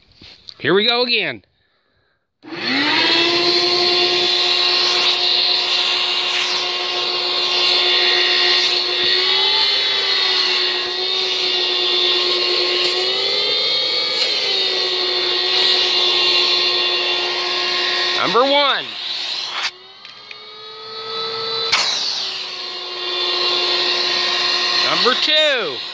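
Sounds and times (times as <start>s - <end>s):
shop vac motor whining: 2.4s - 25.9s.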